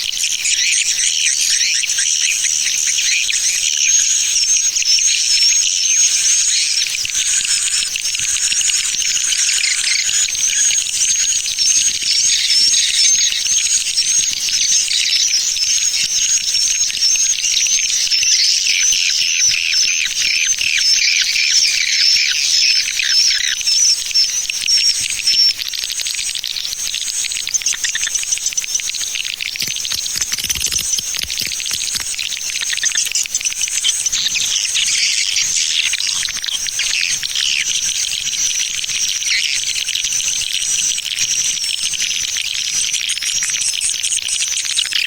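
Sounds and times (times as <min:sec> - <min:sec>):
swiftlet chirps and twitters: 0:27.1 - 0:38.7.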